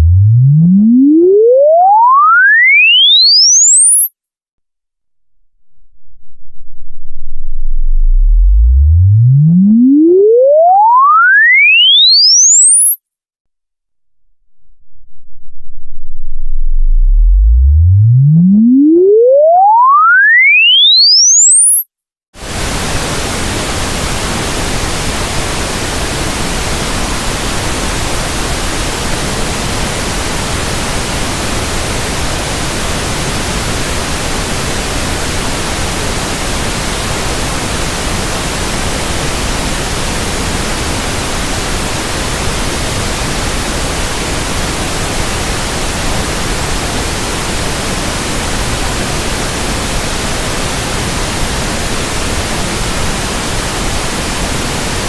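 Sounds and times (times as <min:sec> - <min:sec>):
pink noise hiss: 0:22.4 - 0:55.0.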